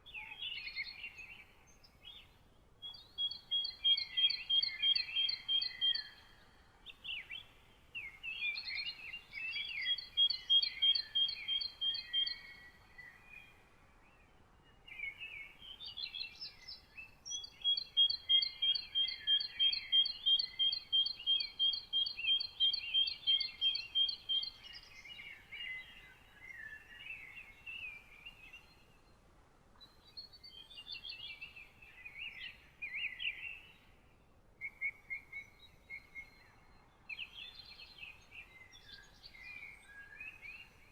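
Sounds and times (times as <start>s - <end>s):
birds chirping and warbling: 0.0s - 14.1s, 29.8s - 40.9s.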